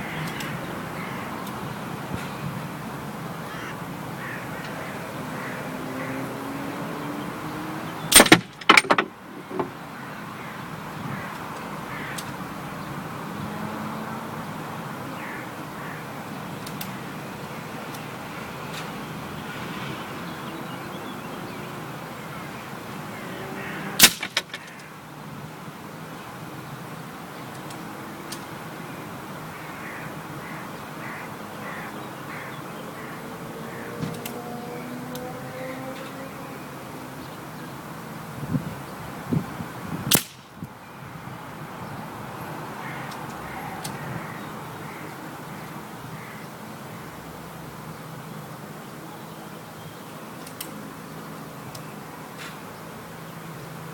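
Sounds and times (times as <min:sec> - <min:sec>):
air rifle shot crack: 0:24.0 - 0:24.5, 0:40.1 - 0:40.4.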